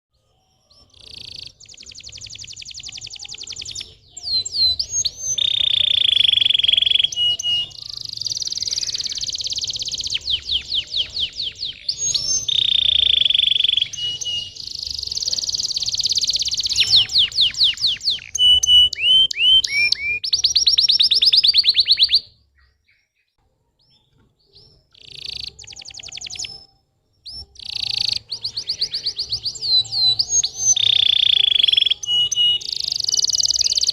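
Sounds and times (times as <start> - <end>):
canary singing: 0.1 - 33.9.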